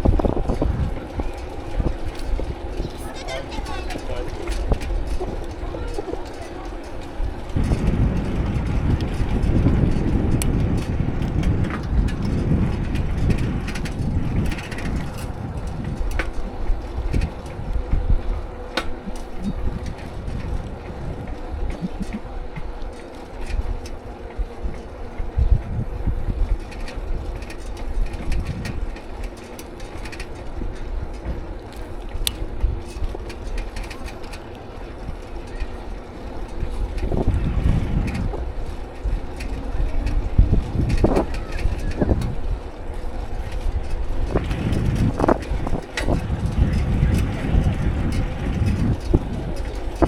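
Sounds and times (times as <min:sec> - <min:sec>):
bicycle rattles and clicks: 0:00.0 - 0:50.0
wind rumbling on microphone: 0:00.0 - 0:50.0.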